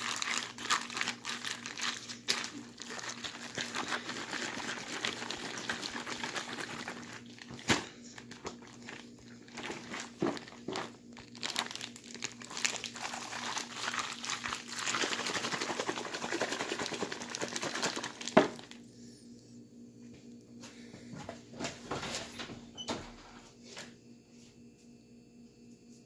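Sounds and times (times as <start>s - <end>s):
plastic bag rustling: 0.0s - 18.8s.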